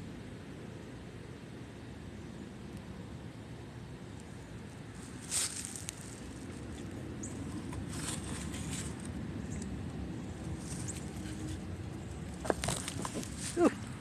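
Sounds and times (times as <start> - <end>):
rustling: 4.9 - 9.2, 10.4 - 14.0.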